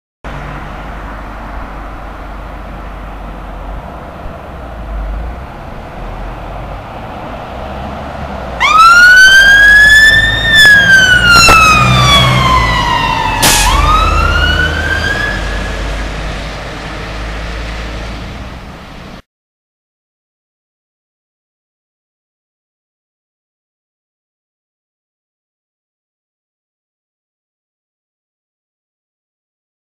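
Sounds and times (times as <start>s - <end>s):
road traffic noise: 0.2s - 19.3s
fire engine siren wailing: 6.0s - 18.4s.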